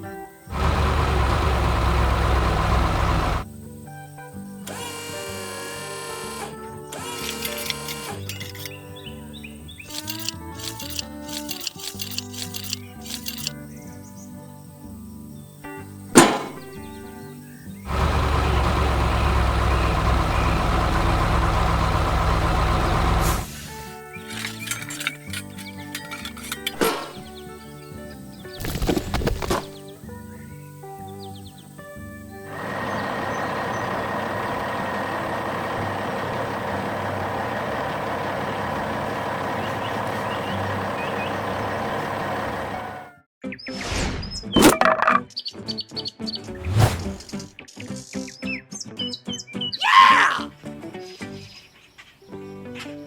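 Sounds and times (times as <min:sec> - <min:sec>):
music: 0:00.0 - 0:00.5, 0:03.4 - 0:17.9, 0:23.4 - 0:33.0, 0:43.1 - 0:46.6, 0:47.2 - 0:53.0
truck engine deep rumble: 0:00.5 - 0:03.4, 0:17.9 - 0:27.0, 0:32.5 - 0:43.1.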